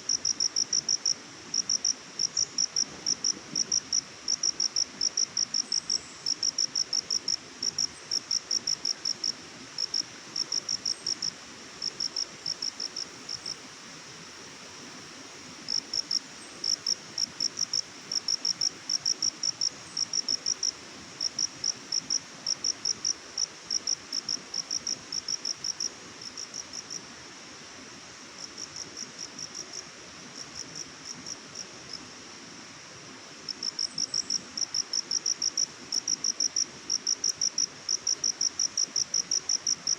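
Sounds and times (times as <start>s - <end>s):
faint background hiss: 0.0s - 39.9s
cricket chirping: 0.1s - 13.6s, 15.6s - 27.0s, 33.5s - 39.9s.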